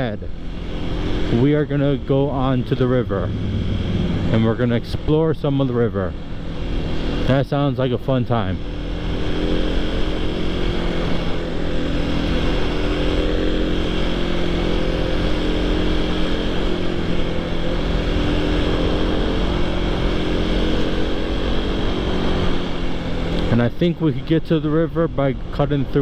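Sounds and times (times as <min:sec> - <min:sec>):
motorcycle engine cruising: 0:00.0 - 0:26.0
rushing wind: 0:02.0 - 0:07.2.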